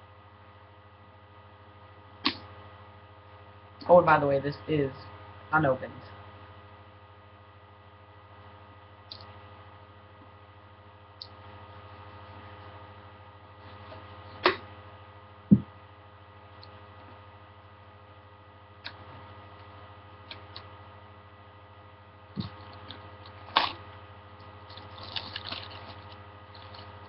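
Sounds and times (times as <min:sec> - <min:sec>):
electrical hum: 0:00.0 - 0:27.0
dull thump: 0:15.5 - 0:15.7
small crackles: 0:24.4 - 0:27.0.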